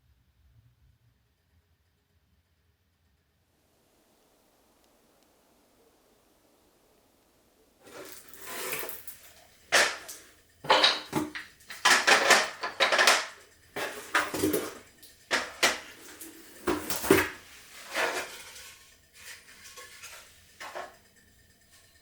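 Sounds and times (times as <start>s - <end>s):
dishes and utensils clinking: 7.9s - 21.0s.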